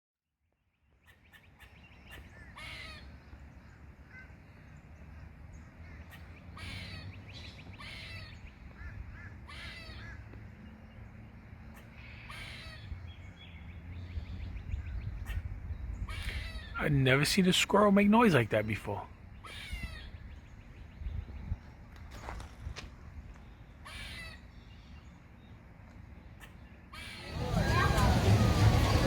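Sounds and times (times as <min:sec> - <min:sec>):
squirrel calling: 0:00.9 - 0:04.4, 0:05.7 - 0:10.3, 0:11.7 - 0:13.6, 0:14.7 - 0:20.6, 0:23.8 - 0:24.9, 0:26.4 - 0:28.9
low outdoor rumble: 0:27.0 - 0:29.0.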